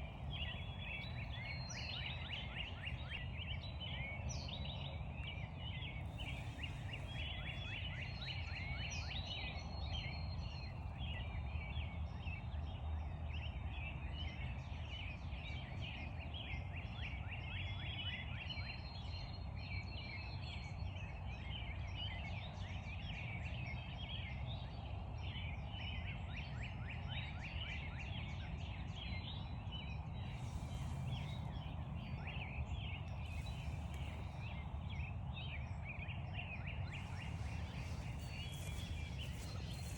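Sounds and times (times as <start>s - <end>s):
low background rumble: 30.0s - 39.9s
birds chirping and trilling: 30.2s - 35.7s, 36.4s - 39.9s
brief rustles: 37.0s - 39.9s.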